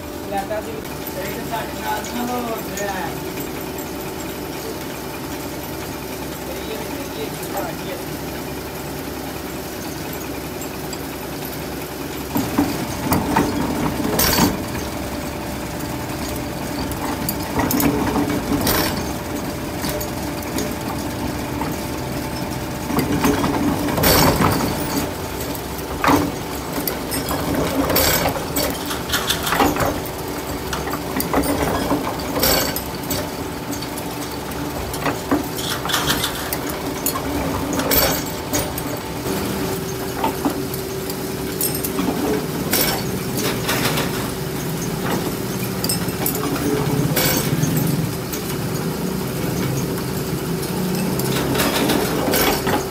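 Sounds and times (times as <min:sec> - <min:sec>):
machinery humming: 0:00.0 - 0:52.9
metal strikes and clanks: 0:12.3 - 0:15.1, 0:16.2 - 0:48.5.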